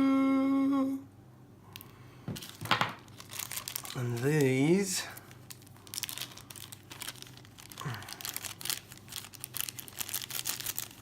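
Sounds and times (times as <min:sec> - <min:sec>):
packaging crinkling: 0:02.3 - 0:11.0.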